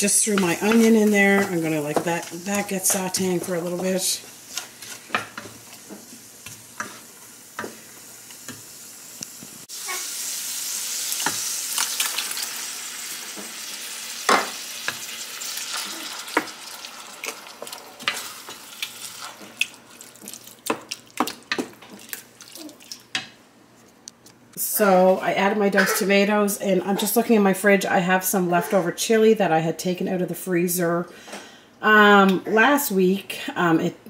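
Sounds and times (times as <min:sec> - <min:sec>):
meat sizzling in a pot: 0:00.0 - 0:23.2.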